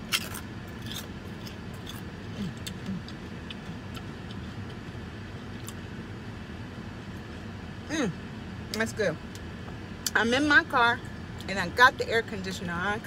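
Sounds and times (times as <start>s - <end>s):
crunchy chewing clicks: 0.0s - 5.8s
car air conditioning hum: 0.0s - 13.0s.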